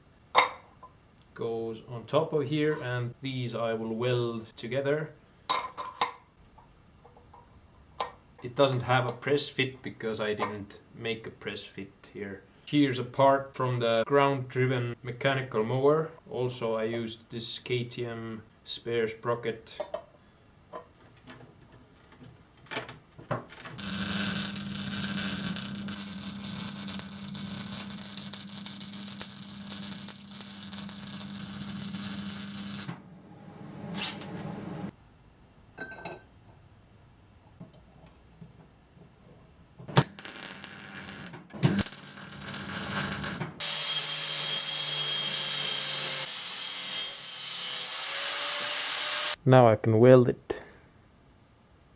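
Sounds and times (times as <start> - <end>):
electric power tool running: 23.8 - 32.9, 41.7 - 44.1
tool running with high whine: 23.8 - 32.9.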